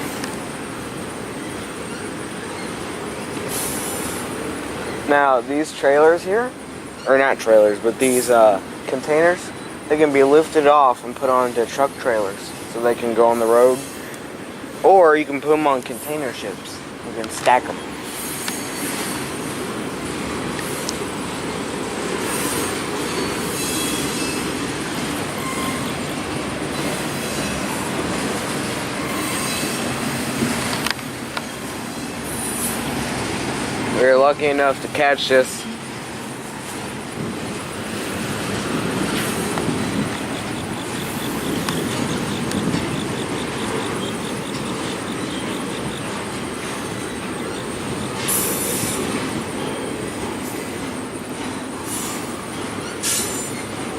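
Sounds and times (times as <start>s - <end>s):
train wheels rumbling on rail: 0.0s - 53.9s
high hiss or screech: 3.5s - 4.3s, 32.3s - 32.9s, 48.2s - 49.1s, 51.9s - 52.3s, 53.0s - 53.6s
high wheel squeals: 17.8s - 19.3s, 22.2s - 27.8s, 28.6s - 30.0s, 38.9s - 50.8s, 51.5s - 53.8s.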